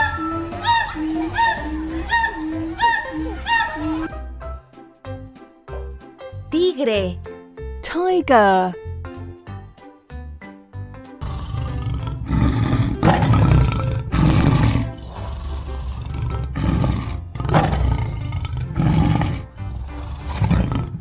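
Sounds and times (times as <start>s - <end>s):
tiger roaring and growling: 0.0s - 4.3s, 11.2s - 21.0s.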